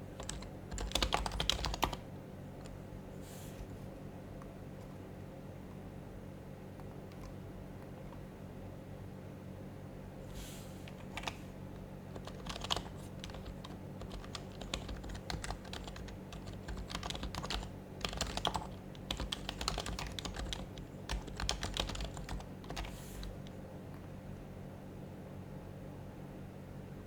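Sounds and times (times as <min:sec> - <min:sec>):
steady low hum: 0:00.0 - 0:27.0
keyboard typing: 0:00.1 - 0:02.0, 0:06.8 - 0:08.2, 0:10.9 - 0:11.4, 0:12.1 - 0:23.6.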